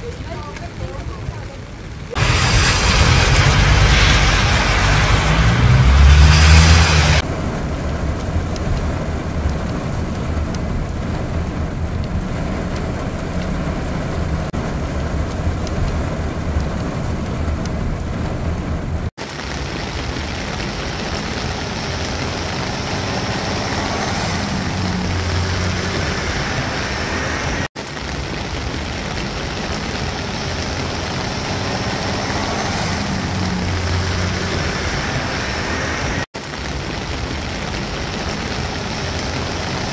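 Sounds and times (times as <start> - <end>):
heavy rain pouring: 0.0 - 39.9
low rumble: 1.9 - 19.1.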